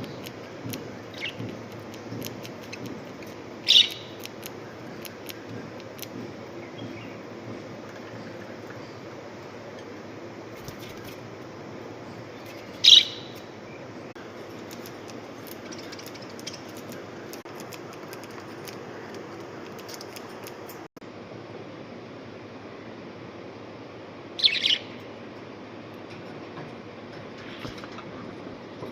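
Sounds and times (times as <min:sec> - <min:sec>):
budgerigar chirp: 0:03.6 - 0:04.2, 0:12.8 - 0:13.4, 0:24.4 - 0:25.0.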